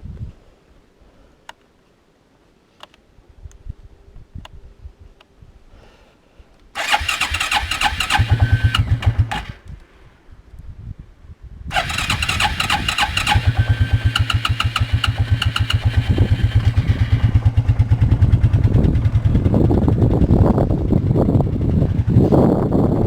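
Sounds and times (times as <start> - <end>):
atv engine starting and running: 6.8 - 10.0, 11.7 - 23.0.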